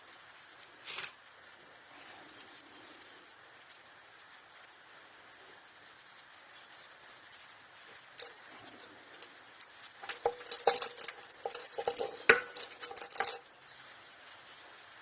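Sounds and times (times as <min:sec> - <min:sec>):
metal tools clinking and clattering: 0:08.2 - 0:09.3, 0:10.0 - 0:13.4.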